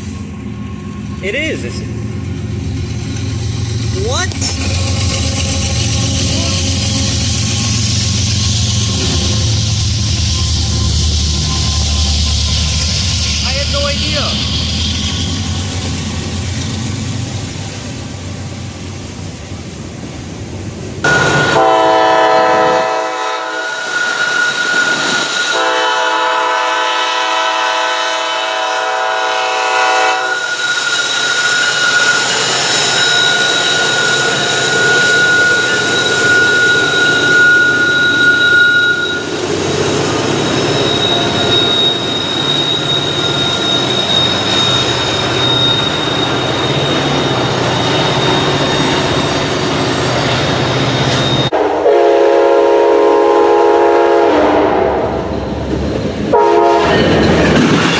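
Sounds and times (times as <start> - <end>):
passing train rumble: 0.0 - 57.9
high-pitched ringing: 21.1 - 21.7, 30.2 - 39.5, 40.4 - 51.5
locomotive air horn: 21.1 - 30.6, 51.5 - 55.2, 56.3 - 57.1.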